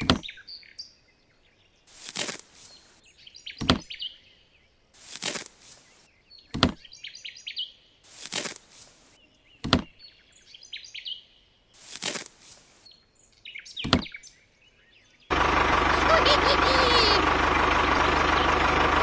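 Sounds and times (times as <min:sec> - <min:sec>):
gritty scrape of sand: 0:01.9 - 0:03.0, 0:05.0 - 0:06.0, 0:08.0 - 0:09.2, 0:11.8 - 0:12.9.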